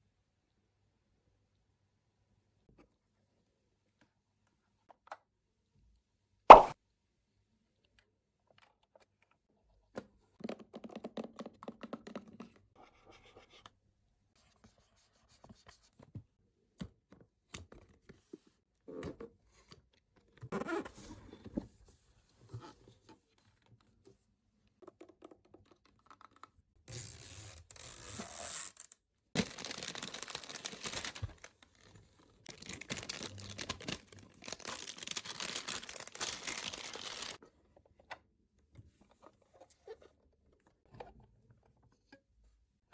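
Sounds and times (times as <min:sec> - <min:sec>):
packaging tearing and rustling: 0:26.9 - 0:37.4.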